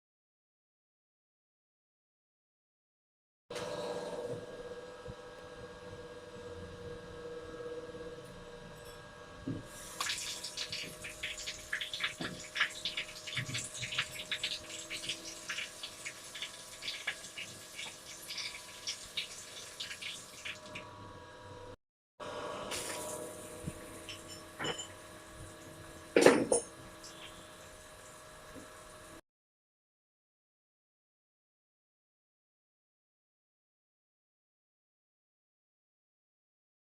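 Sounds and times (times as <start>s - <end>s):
water running from a tap: 9.7s - 20.8s, 22.7s - 29.2s.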